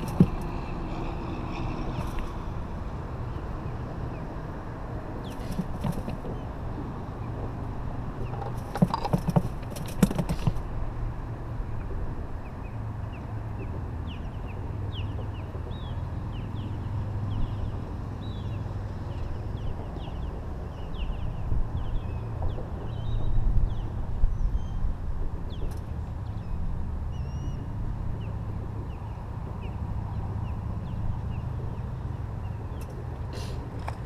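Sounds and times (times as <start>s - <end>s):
low rumble of wind: 0.0s - 34.0s
wild birds chirping: 5.0s - 10.7s, 11.6s - 24.9s, 25.5s - 33.8s
sharp knocks: 8.3s - 10.6s.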